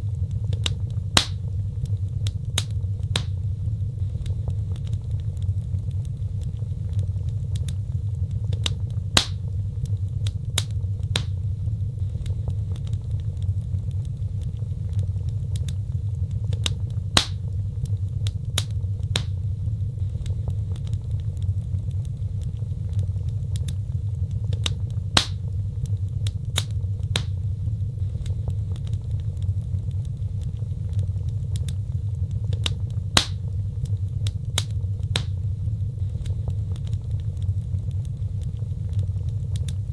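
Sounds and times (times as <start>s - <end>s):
low rumble of burning: 0.0s - 39.9s
wood fire crackling and popping: 0.0s - 39.9s.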